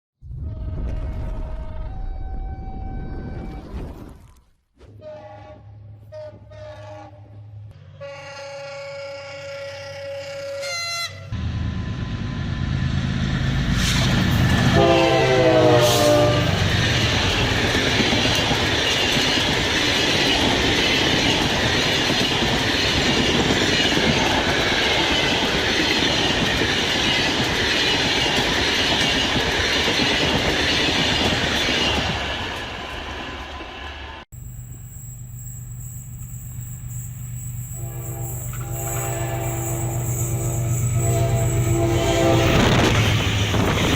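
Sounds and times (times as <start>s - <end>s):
train horn blast dropping in pitch: 4.9s - 12.1s, 14.6s - 16.6s, 37.7s - 43.6s
train wheels rumbling and rattling: 11.7s - 43.9s.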